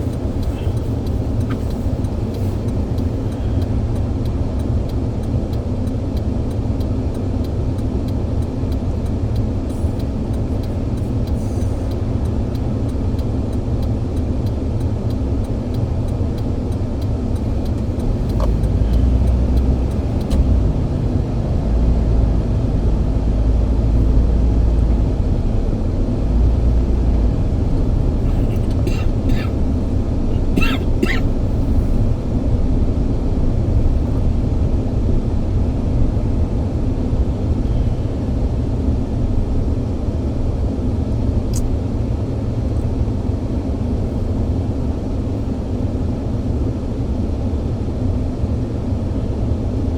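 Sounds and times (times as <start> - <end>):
moving vehicle rumble: 0.0 - 49.9.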